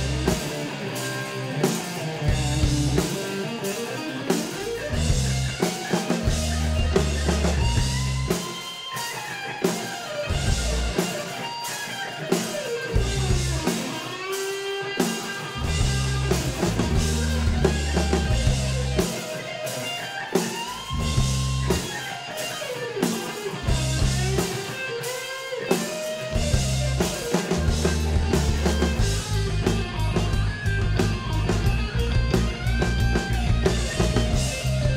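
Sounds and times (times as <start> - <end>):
bass line: 0.0 - 0.5, 2.3 - 3.1, 4.8 - 8.4, 10.3 - 11.0, 13.0 - 13.7, 15.6 - 19.1, 20.8 - 21.9, 23.7 - 24.4, 26.4 - 34.9
drum kit: 0.0 - 34.9
electric guitar bending notes: 0.0 - 34.9.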